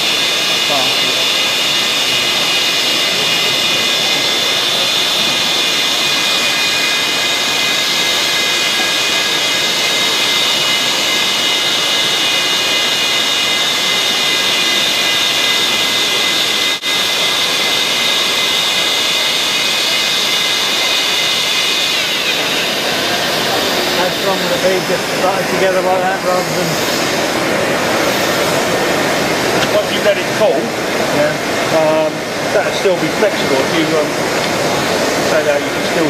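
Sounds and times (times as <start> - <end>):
hot air blower whine: 0.0 - 36.0.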